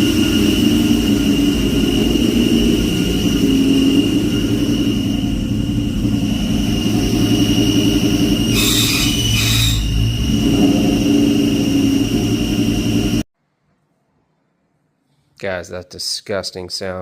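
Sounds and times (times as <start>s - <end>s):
harsh clutch noise burst: 0.0s - 13.2s
car engine whining: 0.0s - 13.3s.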